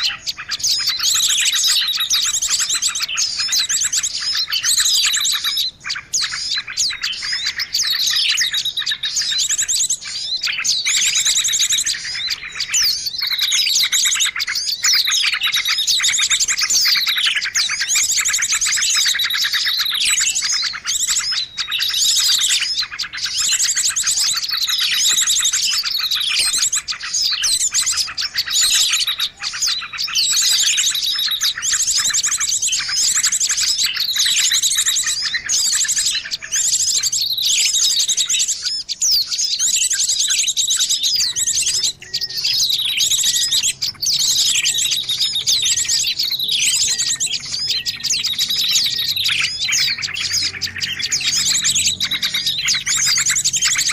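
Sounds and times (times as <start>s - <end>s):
birds chirping and trilling: 0.0s - 53.9s.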